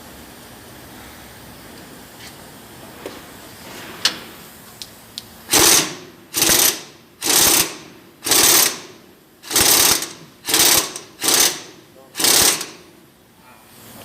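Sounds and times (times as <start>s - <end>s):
impact wrench rattling bursts: 5.5s - 13.0s.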